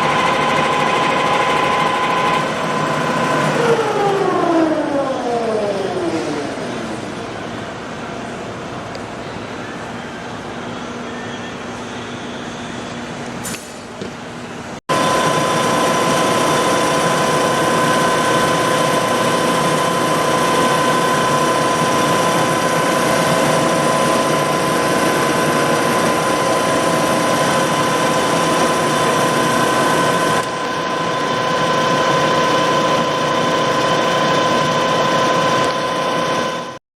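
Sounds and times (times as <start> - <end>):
drill machine hum: 14.9 - 36.8.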